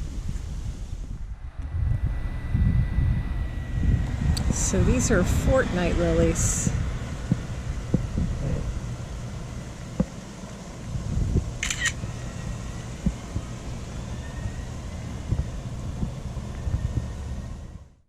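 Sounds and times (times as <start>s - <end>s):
breeze rumble on microphone: 0.0s - 17.9s.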